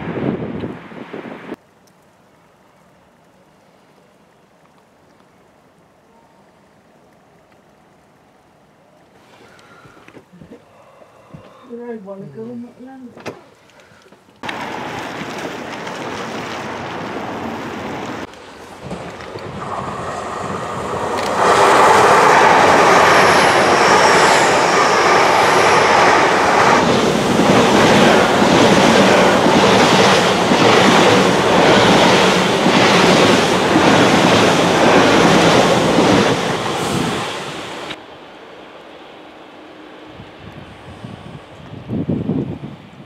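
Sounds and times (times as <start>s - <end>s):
train rushing past: 14.4s - 43.0s
wheels clicking over rail joints: 18.0s - 20.0s.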